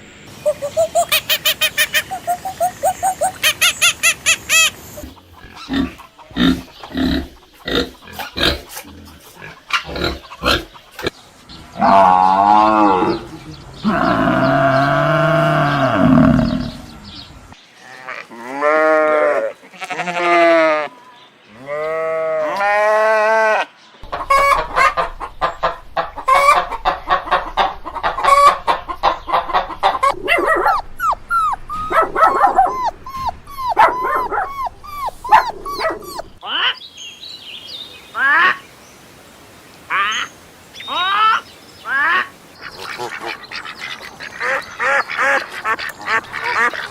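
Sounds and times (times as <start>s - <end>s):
chicken long arching calls: 0.3s - 17.5s, 22.4s - 36.8s, 39.9s - 46.9s
flock of chickens clucking: 0.5s - 11.2s, 24.0s - 36.4s.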